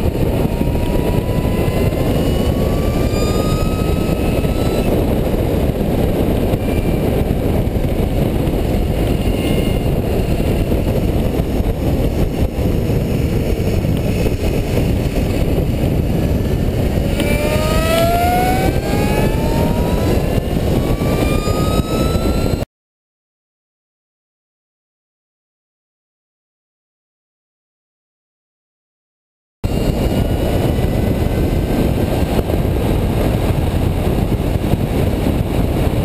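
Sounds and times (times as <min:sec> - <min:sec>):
electric bicycle motor whine: 0:00.0 - 0:22.7
wind rush over microphone: 0:00.0 - 0:22.7, 0:29.6 - 0:36.0.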